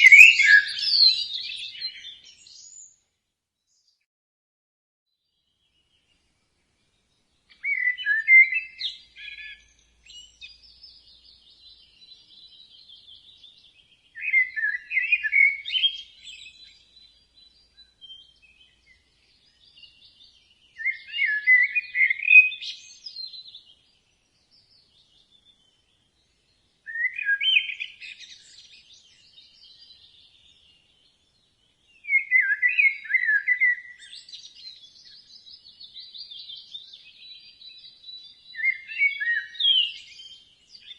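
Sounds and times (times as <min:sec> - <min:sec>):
budgerigars chirping: 0:00.0 - 0:02.0
high bird chatter: 0:00.0 - 0:02.9, 0:07.5 - 0:26.3.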